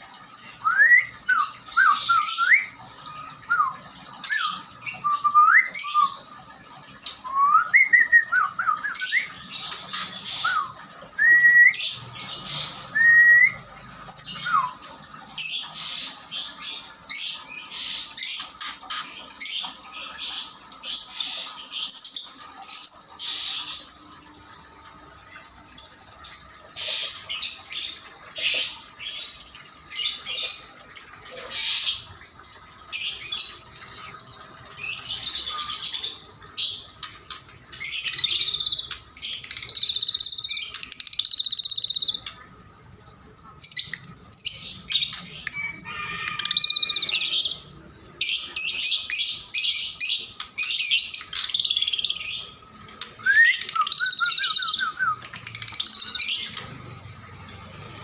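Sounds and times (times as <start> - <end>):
caged birds chirping and twittering: 0.0 - 58.0.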